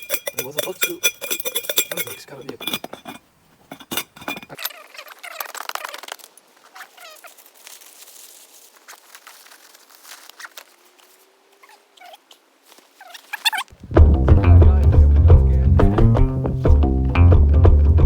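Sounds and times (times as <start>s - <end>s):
crinkling handling noise: 0.0s - 14.0s.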